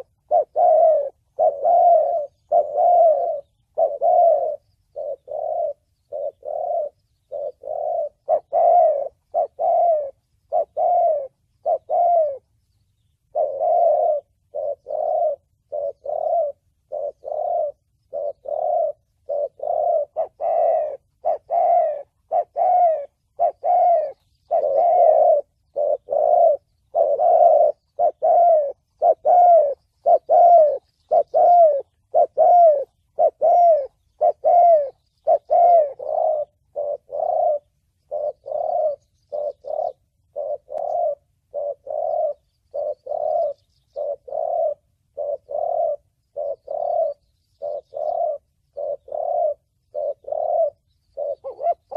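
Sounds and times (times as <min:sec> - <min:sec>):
dove cooing: 0:00.0 - 0:51.9.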